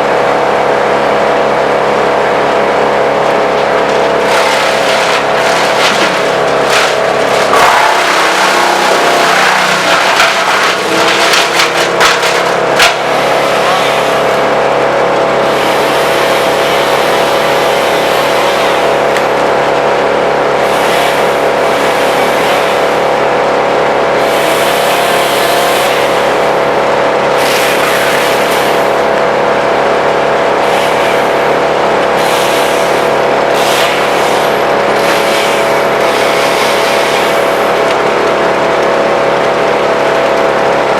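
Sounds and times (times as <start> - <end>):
wood chipper droning: 0.0 - 40.9
branches cracking and knocking: 3.6 - 13.1.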